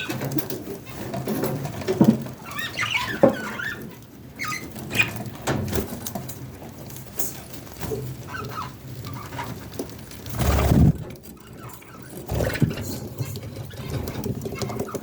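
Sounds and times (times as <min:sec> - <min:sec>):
chicks cheeping: 0:02.4 - 0:05.3.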